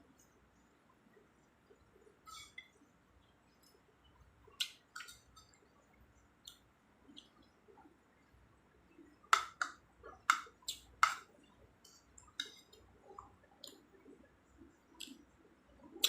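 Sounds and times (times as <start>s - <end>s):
chewing with crisp clicks: 3.5s - 5.8s, 6.4s - 7.9s, 9.0s - 16.0s.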